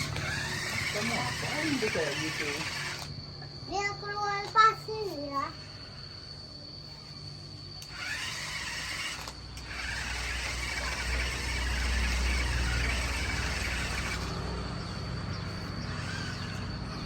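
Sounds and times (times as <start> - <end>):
toy car electric motor whirring: 0.0 - 3.2, 7.8 - 17.0.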